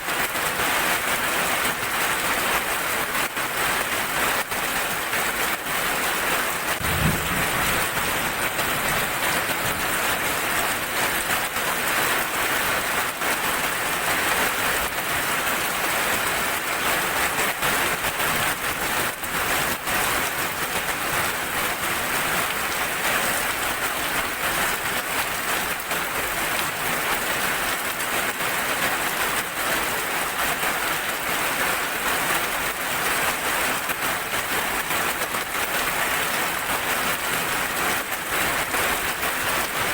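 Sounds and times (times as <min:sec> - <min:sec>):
heavy rain: 0:00.0 - 0:39.9
low thump: 0:06.8 - 0:08.2.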